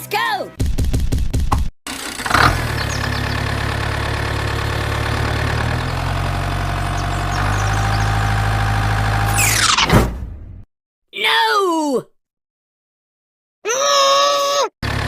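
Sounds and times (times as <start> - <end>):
toy bulldozer engine idling: 1.9 - 9.4.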